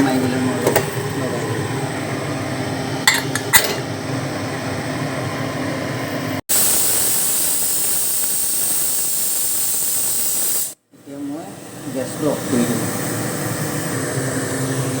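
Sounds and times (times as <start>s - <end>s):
pressure cooker hissing: 6.5s - 15.0s.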